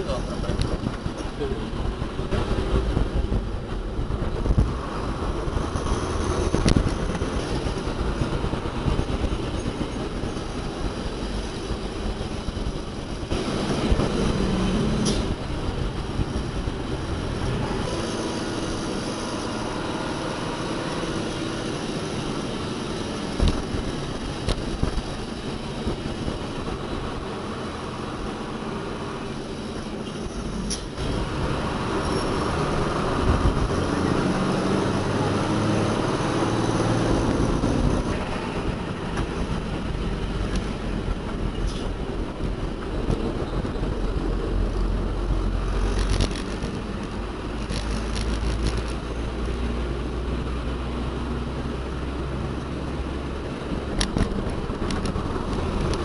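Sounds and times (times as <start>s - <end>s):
diesel machinery running: 0.0s - 56.0s
sharp clicks: 45.9s - 49.0s.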